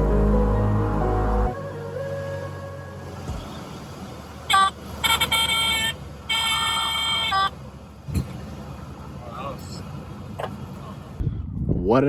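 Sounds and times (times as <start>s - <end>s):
car horn honking: 4.5s - 7.6s.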